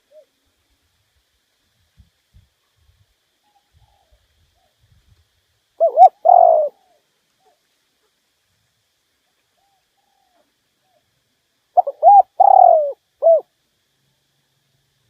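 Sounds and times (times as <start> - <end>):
dove cooing: 0.0 - 0.4, 5.8 - 7.6, 11.8 - 13.5.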